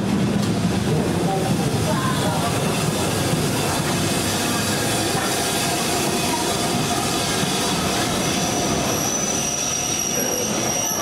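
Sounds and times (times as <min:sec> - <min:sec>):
train coaches rolling on rails: 0:00.0 - 0:11.0
high wheel squeal: 0:03.0 - 0:11.0.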